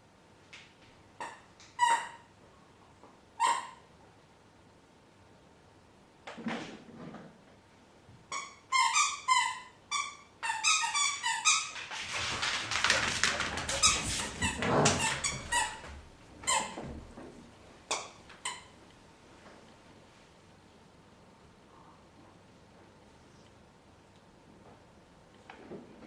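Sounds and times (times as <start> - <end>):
dogs scuffling: 11.5 - 18.5.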